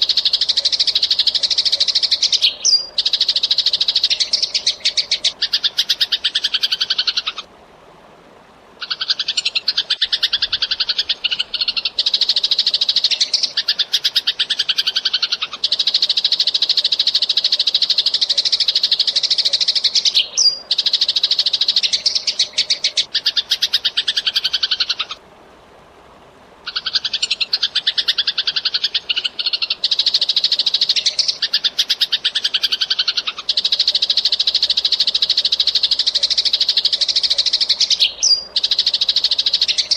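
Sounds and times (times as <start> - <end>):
sparrows chirping: 0.0 - 7.4, 26.7 - 39.9.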